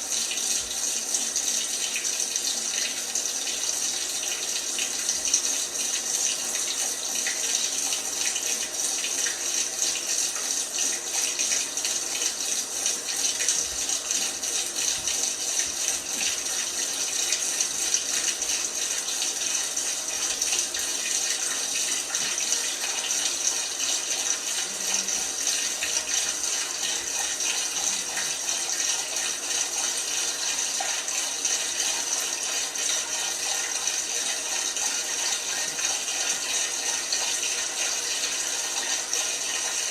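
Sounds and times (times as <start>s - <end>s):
water running into washing machine: 0.0s - 39.9s.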